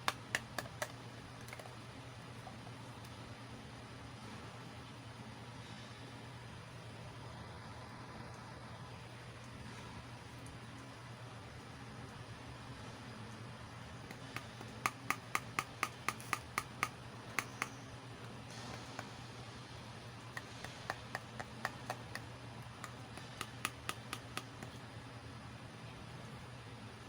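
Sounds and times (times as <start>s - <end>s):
plastic toy pieces clicking: 14.1s - 17.8s, 22.8s - 24.8s.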